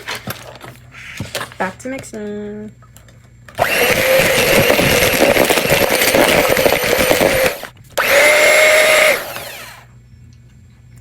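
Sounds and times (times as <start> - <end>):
electric mixer whining: 3.6 - 9.9.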